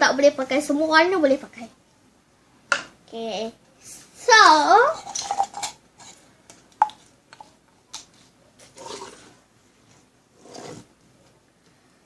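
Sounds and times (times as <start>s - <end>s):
rustling scrapes: 8.2s - 11.0s.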